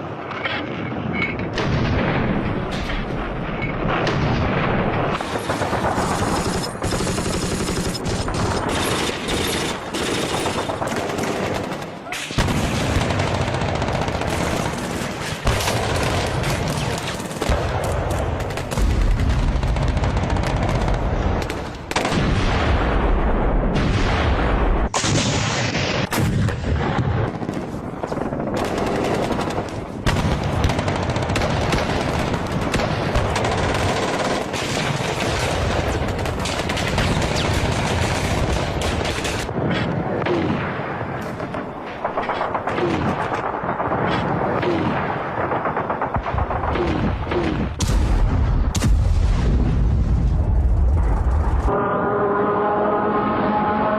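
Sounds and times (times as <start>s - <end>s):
rapid machine-gun fire: 3.9s - 22.3s, 27.3s - 39.5s
deep rumble of heavy fire: 12.4s - 34.0s, 34.6s - 51.8s.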